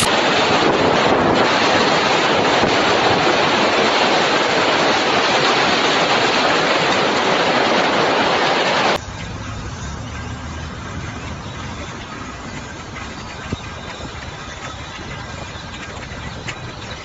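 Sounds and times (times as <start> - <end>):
strong storm wind rushing: 0.0 - 9.0.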